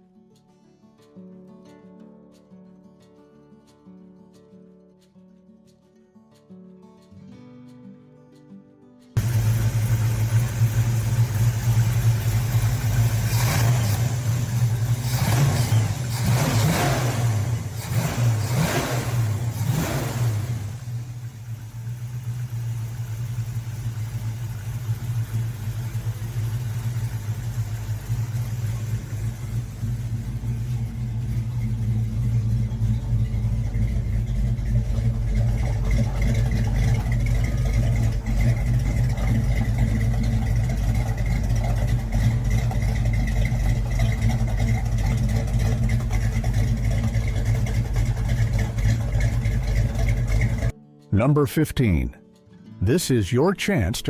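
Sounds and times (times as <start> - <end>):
car engine revving and idling: 9.2 - 50.7.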